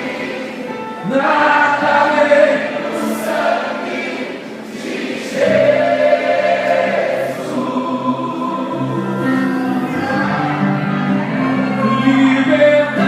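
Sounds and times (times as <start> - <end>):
congregation singing worship song: 0.0 - 13.0
instrumental accompaniment with bass: 5.6 - 13.0.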